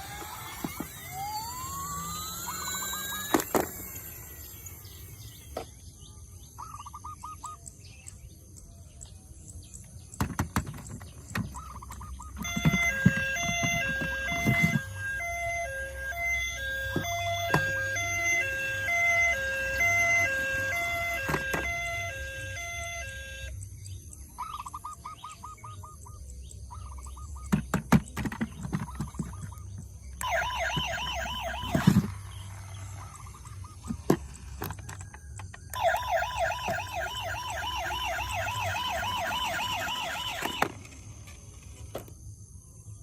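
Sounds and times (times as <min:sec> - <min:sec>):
toy siren warbling: 0:00.0 - 0:05.7, 0:11.4 - 0:23.6, 0:30.2 - 0:41.4
electronic beep tones: 0:12.2 - 0:23.5, 0:30.2 - 0:32.1, 0:35.8 - 0:40.6.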